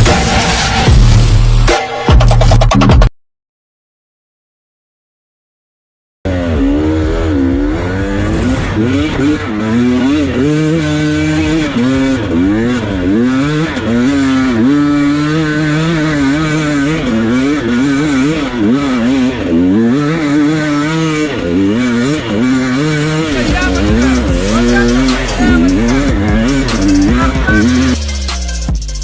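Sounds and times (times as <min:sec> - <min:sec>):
dirt bike engines revving: 0:06.3 - 0:29.0.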